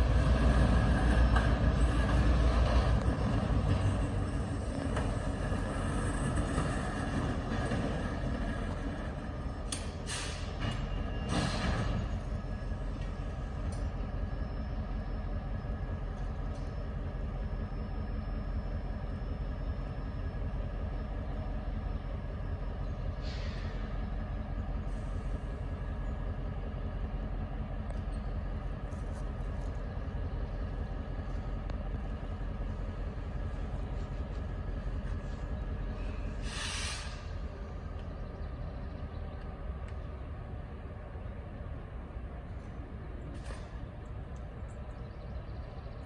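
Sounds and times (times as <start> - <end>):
diesel locomotive droning: 0.0 - 46.0
air brake hiss: 10.0 - 10.6, 23.2 - 23.9, 36.0 - 37.4.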